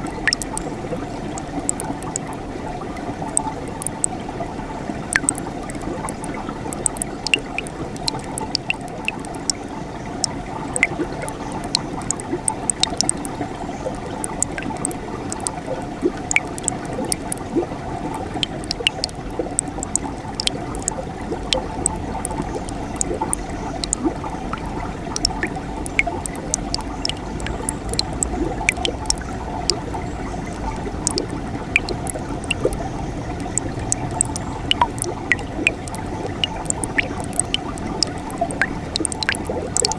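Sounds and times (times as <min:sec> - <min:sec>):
small water splashes and drips: 0:00.0 - 0:39.9.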